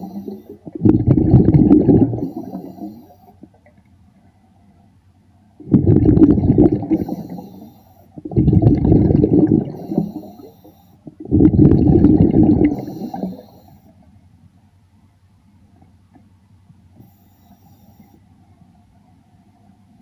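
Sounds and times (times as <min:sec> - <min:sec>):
diver exhaling bubbles underwater: 0:00.0 - 0:03.6, 0:05.6 - 0:13.6.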